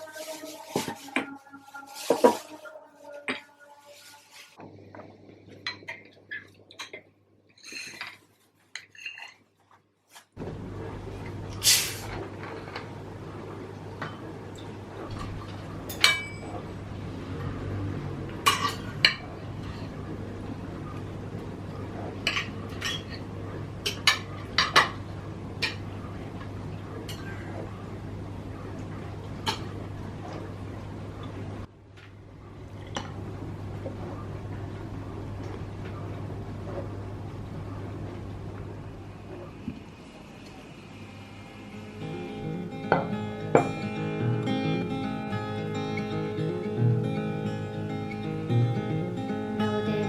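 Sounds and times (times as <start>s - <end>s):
dishes and cutlery clinking: 5.6s - 9.8s, 14.0s - 16.6s, 18.4s - 19.9s, 22.2s - 25.0s, 27.0s - 27.5s.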